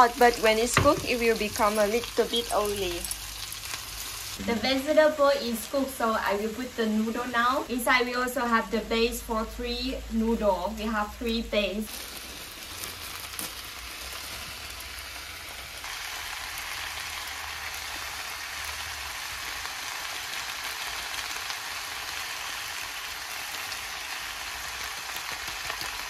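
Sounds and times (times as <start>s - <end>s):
food sizzling in a frying pan: 0.0s - 26.0s.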